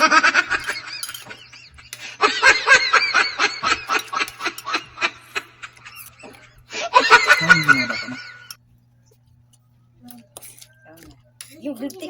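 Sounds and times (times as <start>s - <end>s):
person laughing: 6.7s - 8.5s.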